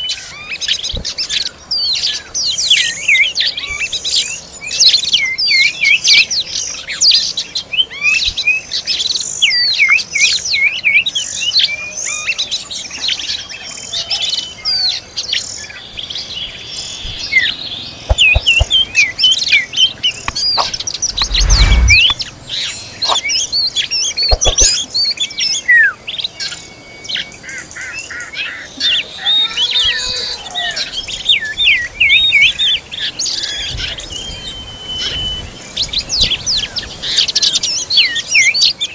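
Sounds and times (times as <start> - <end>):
birds chirping and whistling: 14.4 - 28.1
short low thump: 18.1 - 18.8, 20.3 - 22.2.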